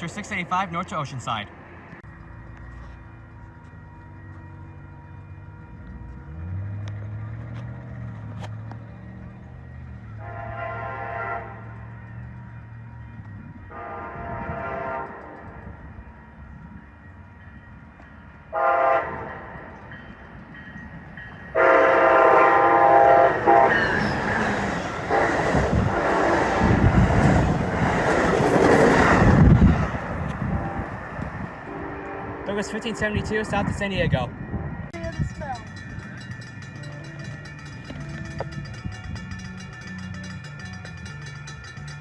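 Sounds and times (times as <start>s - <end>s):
train passing rumble and wheel noise: 0.0s - 42.0s
train horn blasts: 10.1s - 12.0s, 13.5s - 15.6s, 18.5s - 19.8s, 21.5s - 24.2s, 25.0s - 27.1s, 30.4s - 33.1s.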